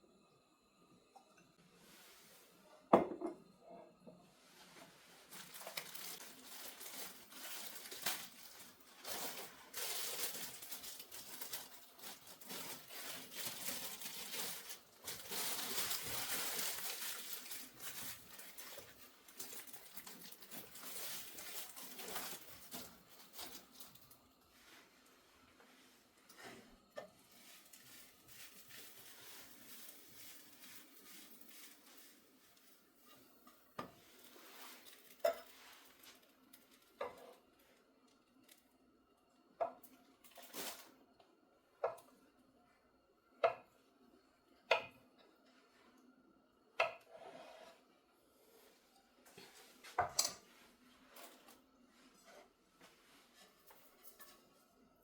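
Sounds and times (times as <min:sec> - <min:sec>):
rustling and crinkling: 0:04.3 - 0:38.7, 0:40.2 - 0:41.0, 0:48.4 - 0:54.7.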